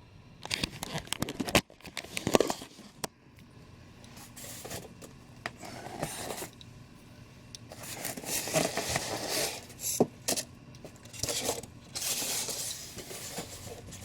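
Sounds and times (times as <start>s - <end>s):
wrapping rustling and scraping: 4.1s - 6.6s, 7.7s - 14.0s.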